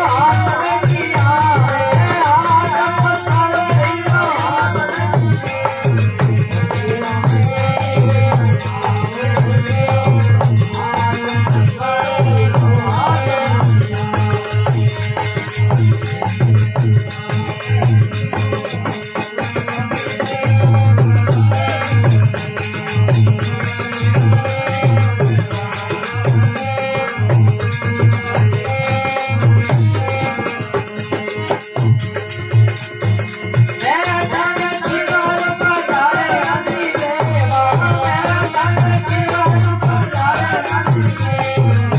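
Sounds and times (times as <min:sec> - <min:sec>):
folk devotional melody: 0:00.0 - 0:41.9
hand drum rhythm: 0:00.0 - 0:41.9
rattling percussion: 0:00.0 - 0:41.9.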